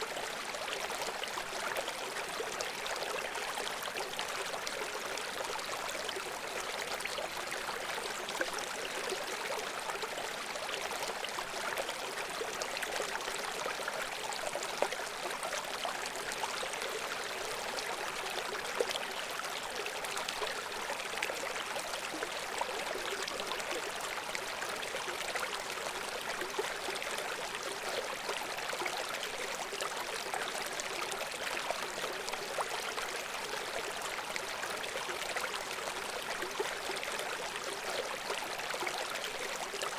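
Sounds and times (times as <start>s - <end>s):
brook babbling over stones: 0.0s - 39.9s.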